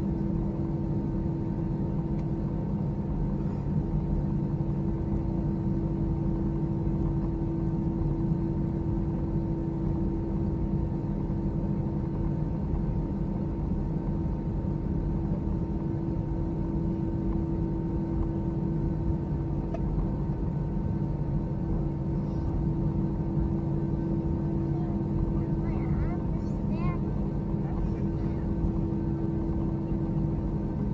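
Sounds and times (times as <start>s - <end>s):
engines idling in cabin: 0.0s - 30.9s
air-conditioning hum: 19.0s - 30.9s.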